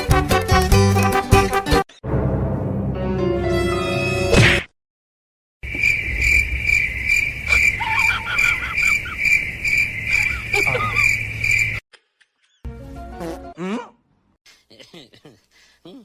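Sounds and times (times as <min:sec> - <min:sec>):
crickets chirping: 0:05.6 - 0:11.8.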